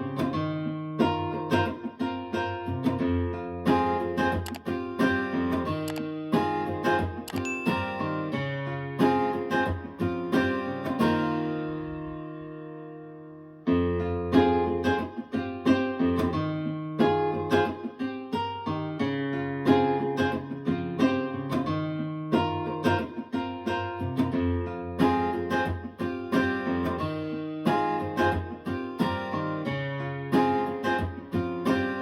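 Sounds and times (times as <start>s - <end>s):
acoustic guitar over loudspeakers: 0.0s - 32.0s.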